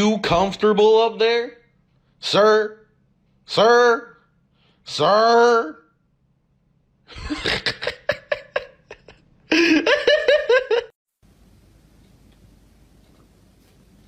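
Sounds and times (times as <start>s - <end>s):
person laughing: 7.1s - 11.0s.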